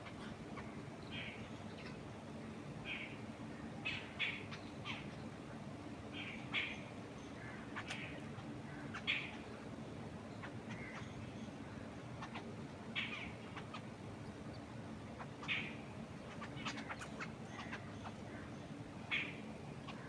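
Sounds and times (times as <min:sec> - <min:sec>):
wild birds chirping: 0:00.0 - 0:20.0.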